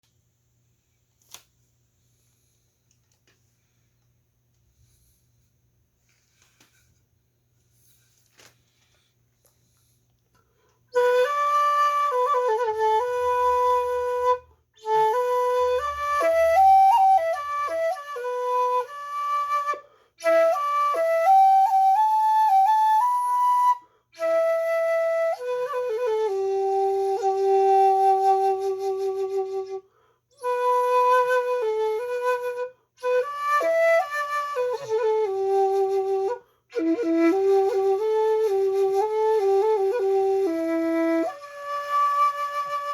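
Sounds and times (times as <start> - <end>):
bamboo flute solo melody: 10.9 - 29.8, 30.4 - 42.9.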